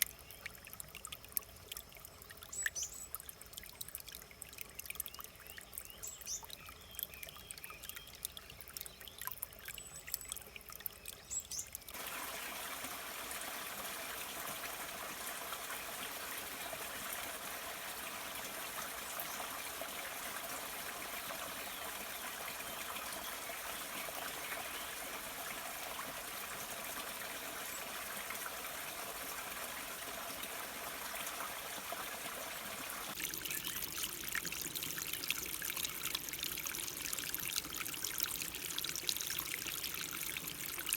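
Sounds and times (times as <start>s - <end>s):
stream water trickling and splashing: 0.0s - 40.9s
flowing water rushing: 11.9s - 40.9s.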